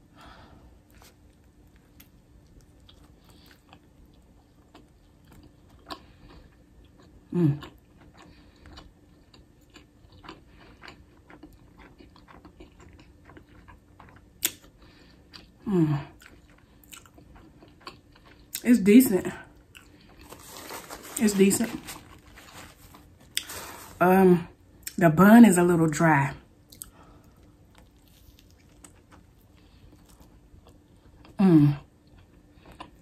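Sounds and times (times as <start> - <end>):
woman chewing crispy food: 0.1 - 24.2, 26.6 - 33.0
woman humming mm: 7.3 - 7.7, 31.4 - 31.8.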